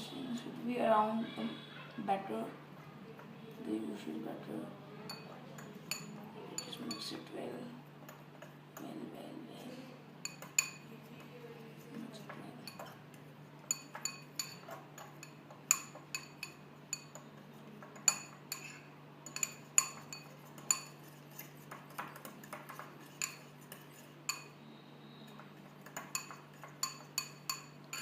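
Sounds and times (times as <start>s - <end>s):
fork clinking against bowl: 5.1s - 7.2s, 10.2s - 10.9s, 13.6s - 24.6s, 25.3s - 28.0s.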